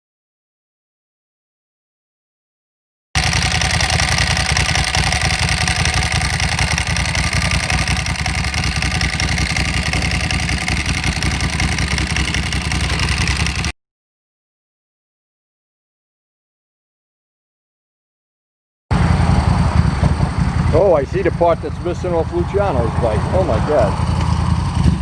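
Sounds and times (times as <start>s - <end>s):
motorcycle engine running: 3.2s - 13.7s, 18.9s - 25.0s.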